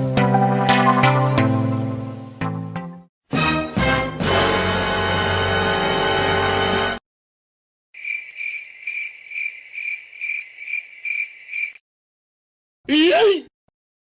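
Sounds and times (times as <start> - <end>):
crickets chirping: 8.0 - 11.8.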